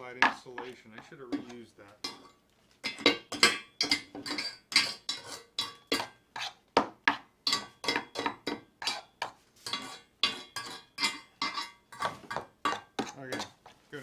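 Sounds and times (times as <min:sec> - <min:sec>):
metal scraping on metal: 0:03.0 - 0:06.6, 0:08.8 - 0:13.8.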